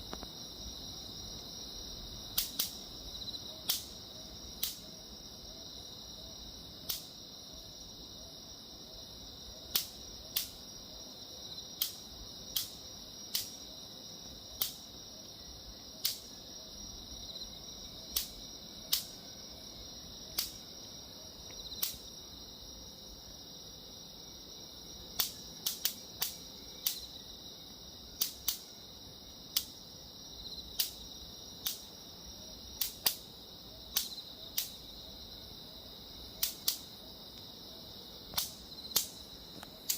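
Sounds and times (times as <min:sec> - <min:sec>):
mosquito zapper cracks: 0:02.4 - 0:02.8, 0:11.8 - 0:13.6, 0:20.4 - 0:20.6, 0:36.4 - 0:36.9.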